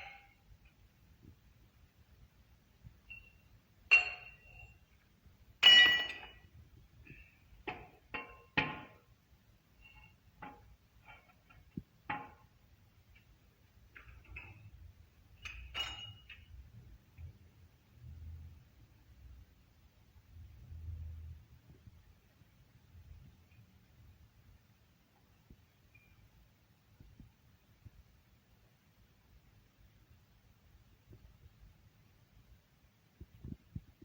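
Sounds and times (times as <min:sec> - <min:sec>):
metal tools clinking: 0:15.4 - 0:16.5.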